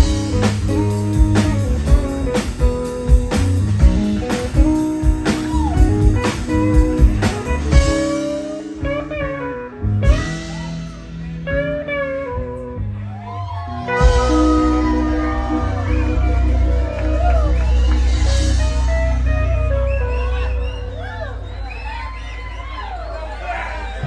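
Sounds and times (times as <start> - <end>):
live blues-rock band: 0.0 - 22.5
guitar lines ringing out: 13.8 - 21.0.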